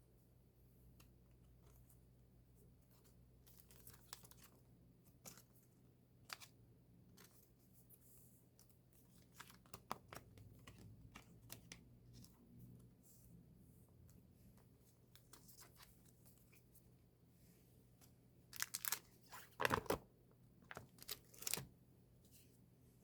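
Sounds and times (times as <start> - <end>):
plastic wrap crinkling: 18.6 - 20.0.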